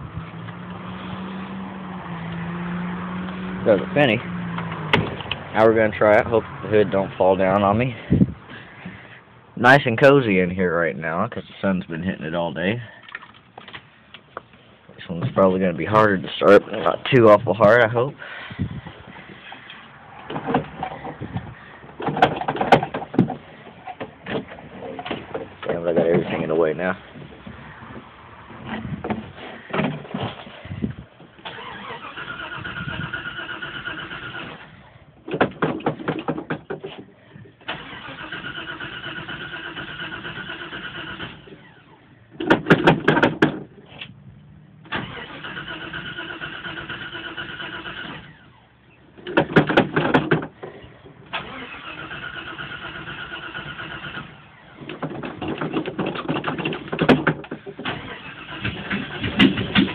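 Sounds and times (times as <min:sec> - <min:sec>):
engine cranking on starter: 0:31.4 - 0:34.8, 0:37.6 - 0:41.9, 0:44.9 - 0:48.6, 0:51.3 - 0:59.9.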